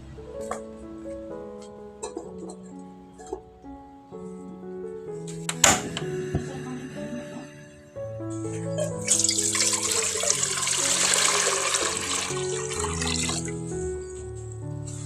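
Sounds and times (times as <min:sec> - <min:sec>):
background music with held notes: 0:00.0 - 0:15.0
water running into a sink: 0:09.0 - 0:13.6.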